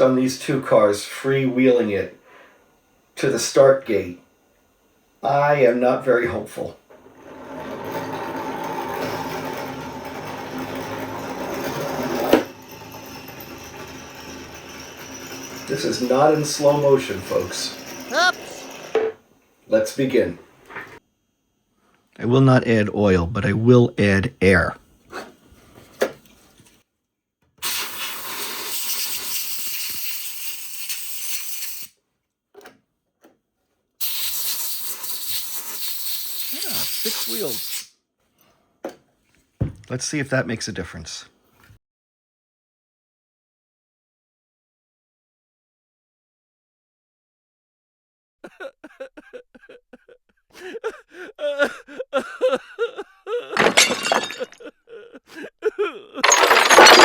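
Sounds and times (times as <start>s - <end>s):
loud shattering crash: 53.6s - 54.6s, 56.2s - 57.0s.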